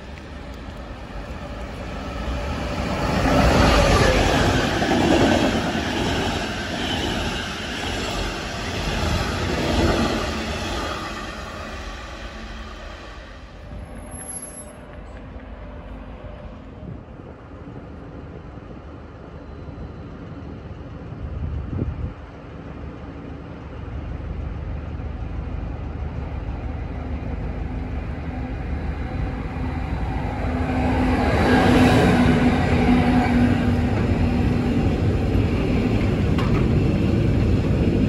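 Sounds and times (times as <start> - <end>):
electric locomotive hum: 0.0 - 38.0
train wheels rumbling: 0.0 - 38.0.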